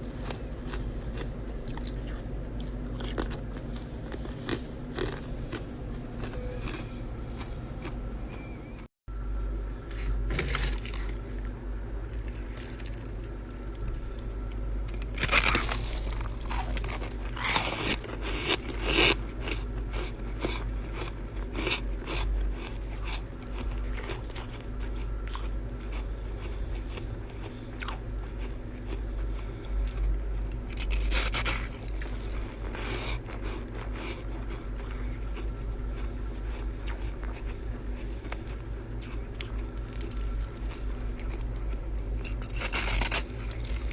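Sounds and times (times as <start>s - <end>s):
steady low hum: 0.0s - 43.9s
ice crunching between teeth: 0.2s - 8.0s, 14.9s - 27.1s, 29.8s - 43.9s.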